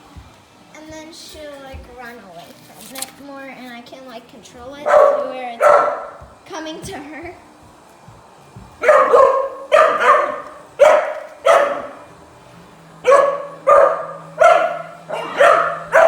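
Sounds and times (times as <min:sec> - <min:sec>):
dog barking: 0:04.8 - 0:06.3, 0:08.8 - 0:12.1, 0:13.0 - 0:16.0.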